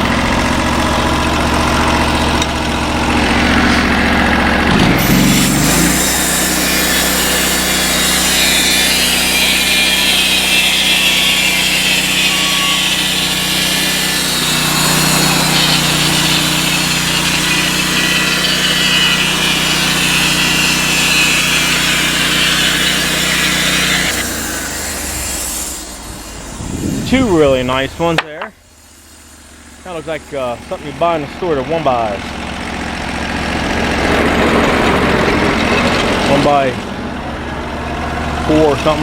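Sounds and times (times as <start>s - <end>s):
sawmill engine running: 0.0s - 39.0s
band blade cutting wood: 2.4s - 28.6s.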